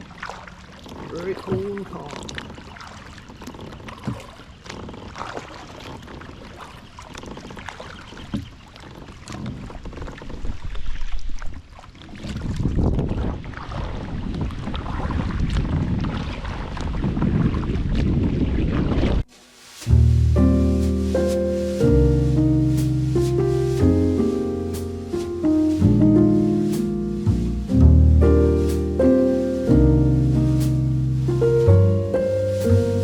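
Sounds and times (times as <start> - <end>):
paddle strokes splashing water: 0.0 - 33.0
wind buffeting microphone: 6.0 - 19.3.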